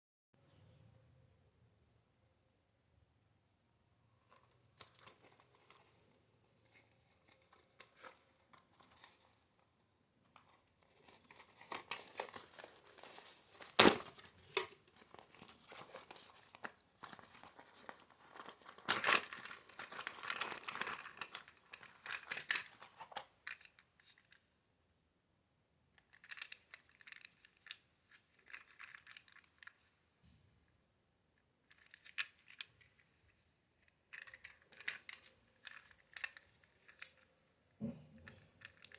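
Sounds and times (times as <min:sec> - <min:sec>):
packaging crinkling and tearing: 0:10.4 - 0:14.3, 0:15.0 - 0:23.3.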